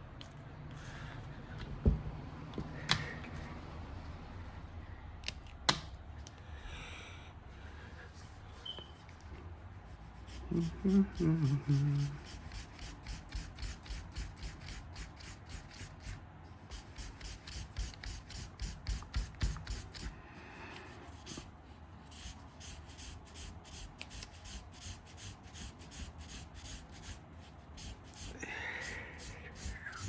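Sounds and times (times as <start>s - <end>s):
marker rubbing on paper: 6.0s - 20.2s, 20.8s - 30.0s.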